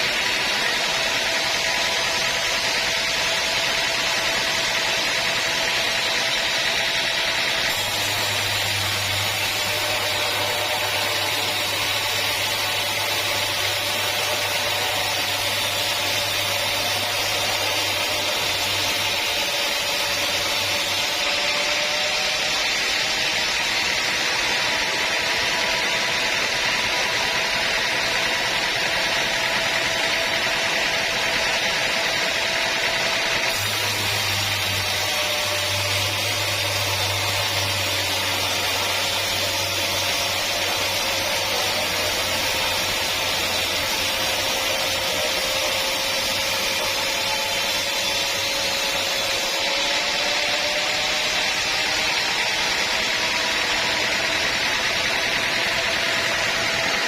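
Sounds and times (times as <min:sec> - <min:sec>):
sawmill saw whining: 0:00.0 - 0:57.0.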